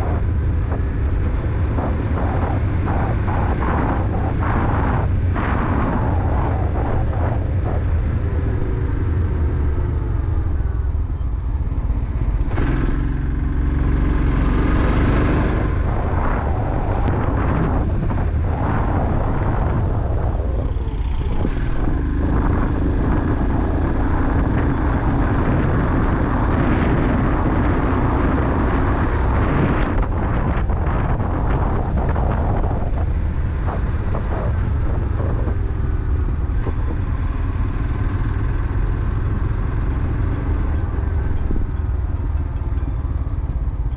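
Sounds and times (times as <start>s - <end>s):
motorcycle engine running: 0.0s - 43.9s
wind noise on microphone: 0.0s - 43.9s.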